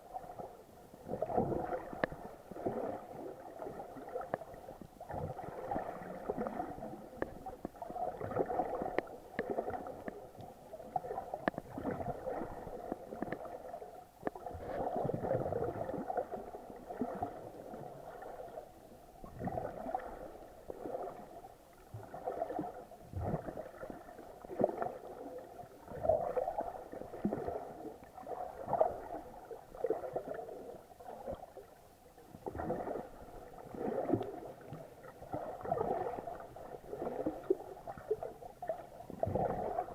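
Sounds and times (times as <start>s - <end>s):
muffled water sloshing underwater: 0.0s - 39.9s.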